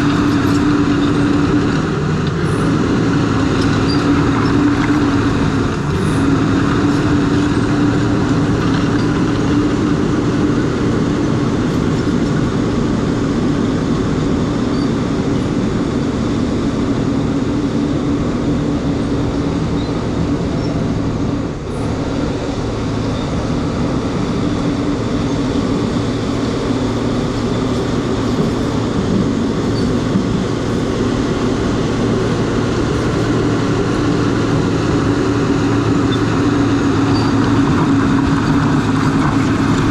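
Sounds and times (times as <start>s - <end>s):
bulldozer diesel engine running: 0.0s - 39.9s
bulldozer tracks: 0.0s - 39.9s.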